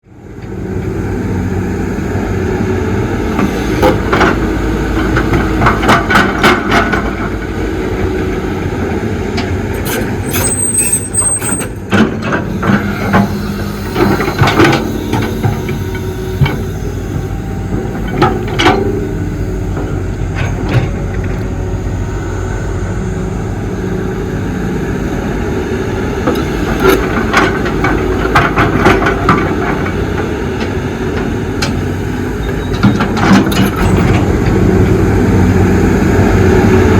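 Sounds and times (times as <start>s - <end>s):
excavator diesel engine: 0.0s - 36.9s
brief high squeal: 10.2s - 11.7s.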